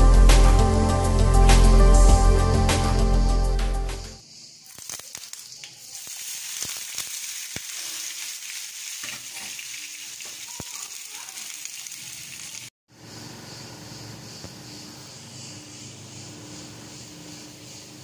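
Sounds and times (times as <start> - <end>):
potatoes sizzling in hot oil: 4.7 - 12.7.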